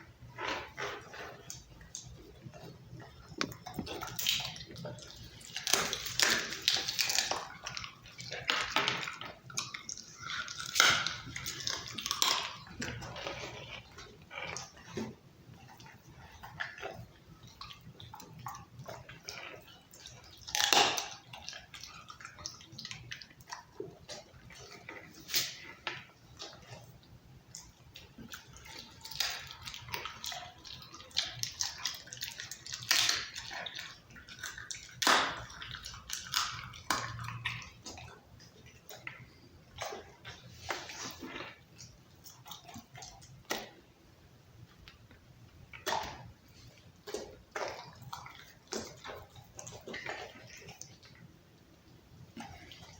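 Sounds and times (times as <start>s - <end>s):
dog chewing and crunching: 0.0s - 52.9s
bone cracking: 3.3s - 15.1s, 20.2s - 22.4s.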